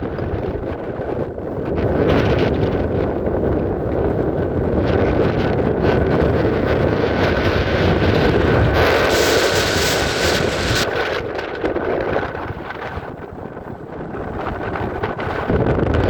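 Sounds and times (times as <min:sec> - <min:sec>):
wind buffeting microphone: 0:00.0 - 0:16.0
faint high whine: 0:08.7 - 0:10.9.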